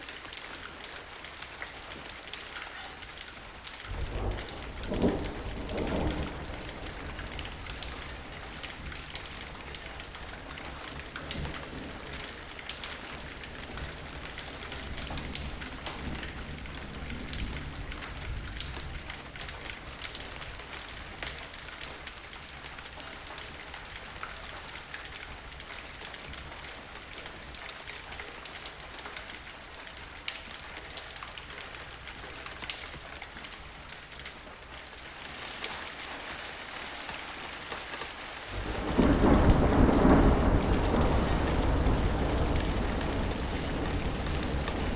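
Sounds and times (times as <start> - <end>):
steady rain falling: 0.0 - 44.9
raindrops ticking: 37.1 - 44.9.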